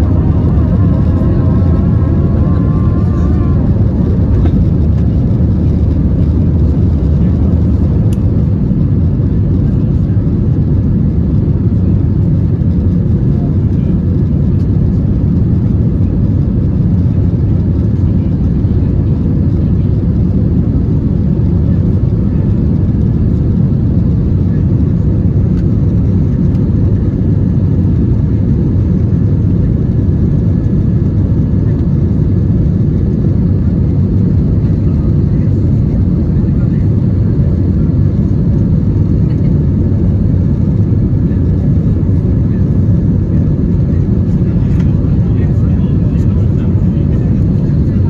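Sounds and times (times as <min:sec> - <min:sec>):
faint steady hum: 0:00.0 - 0:08.2
aircraft cabin engine roar: 0:00.0 - 0:48.0.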